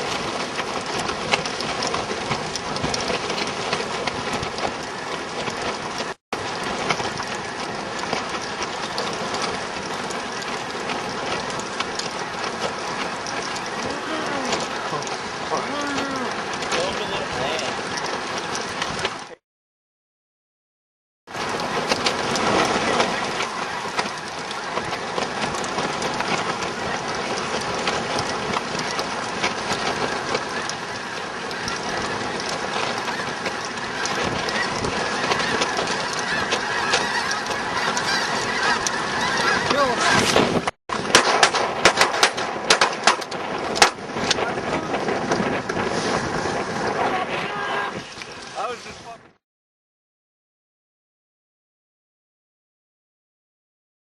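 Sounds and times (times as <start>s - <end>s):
geese honking: 8.4s - 18.4s, 21.6s - 27.6s, 28.7s - 40.4s.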